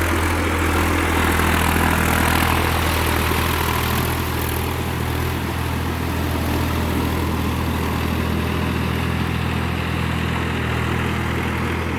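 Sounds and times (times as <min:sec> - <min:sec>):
tractor diesel engine running: 0:00.0 - 0:11.9.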